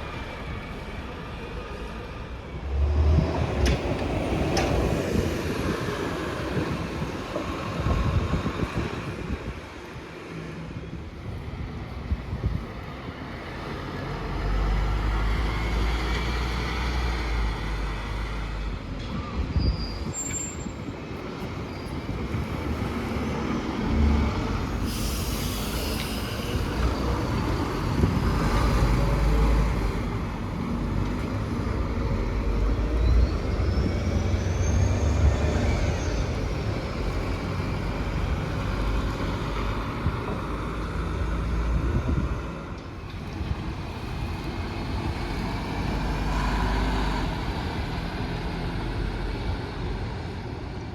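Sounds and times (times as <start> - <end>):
bus engine rumbling: 0.0 - 50.9
air brake hiss: 24.7 - 27.2.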